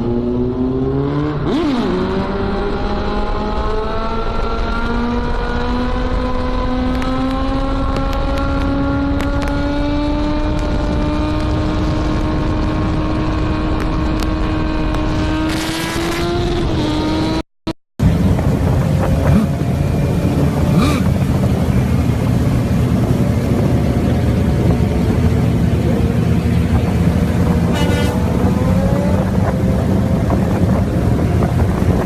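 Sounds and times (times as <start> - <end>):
motorcycle engine at full throttle: 0.0 - 17.4, 18.0 - 32.0
rough engine sound: 18.0 - 32.0.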